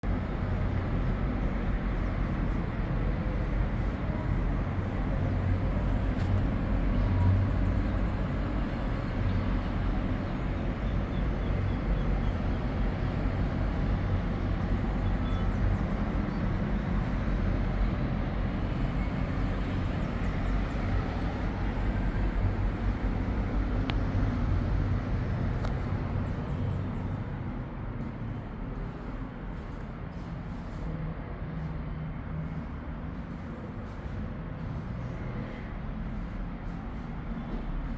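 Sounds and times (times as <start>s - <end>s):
low rumble: 18.5s - 37.9s.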